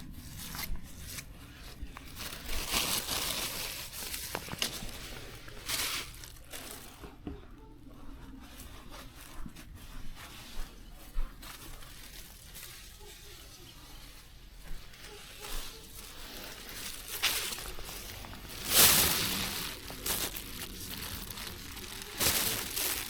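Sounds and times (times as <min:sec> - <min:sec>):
plants rustling and tearing: 0:00.0 - 0:07.1, 0:15.0 - 0:23.0.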